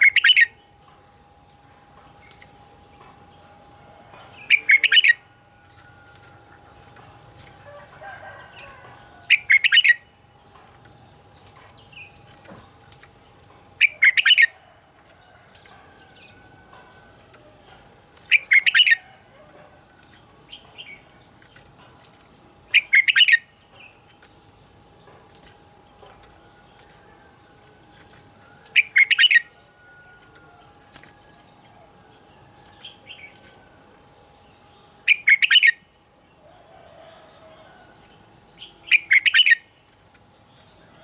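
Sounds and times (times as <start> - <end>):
bulbul singing phrases: 4.2 - 5.6.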